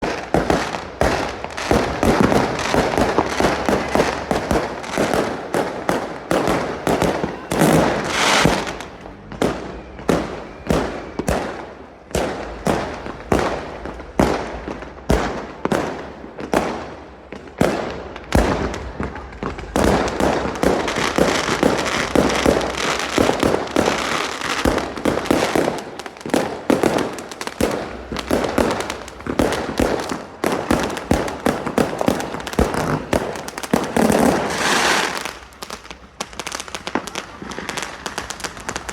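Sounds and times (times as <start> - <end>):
fireworks bangs: 0.0 - 38.9.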